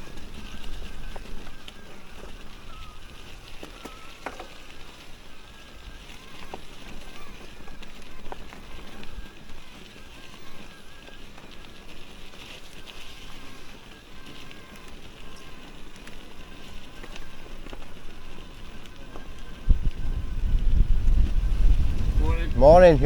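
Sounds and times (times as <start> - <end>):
bike tyre noise and rattle: 0.0 - 23.0
wind rumbling on microphone: 0.0 - 23.0.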